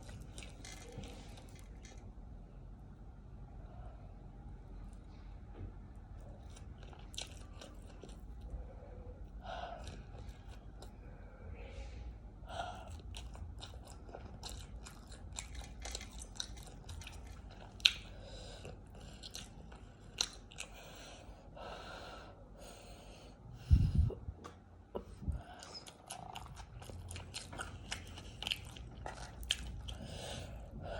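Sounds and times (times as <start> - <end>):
chewing with wet mouth clicks: 0.0 - 2.0, 6.4 - 8.5, 12.8 - 21.0, 24.4 - 30.6
crunching: 0.0 - 2.0.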